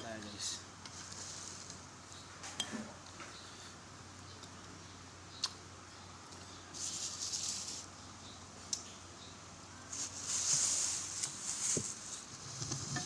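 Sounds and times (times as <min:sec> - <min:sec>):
soft eating noise: 0:00.2 - 0:09.0.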